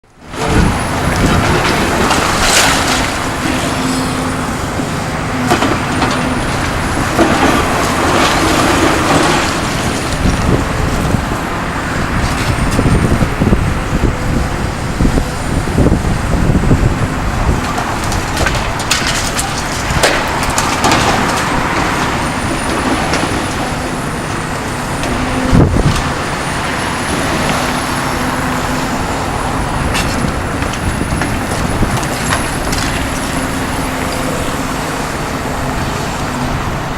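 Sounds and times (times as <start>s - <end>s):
excavator diesel engine running: 0.1s - 36.9s
debris crunching and knocking: 0.4s - 3.8s, 5.4s - 11.2s, 17.5s - 23.8s.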